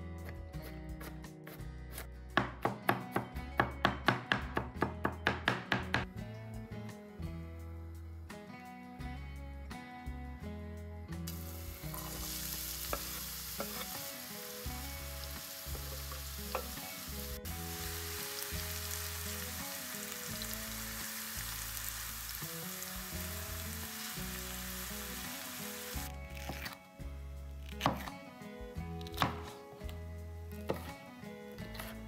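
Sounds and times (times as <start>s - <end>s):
onion sizzling in hot oil: 11.3s - 26.6s.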